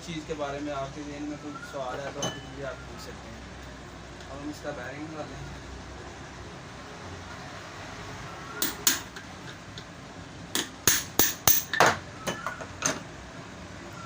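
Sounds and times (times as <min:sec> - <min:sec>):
sharp metal knocks: 0:08.6 - 0:09.3, 0:10.5 - 0:13.0.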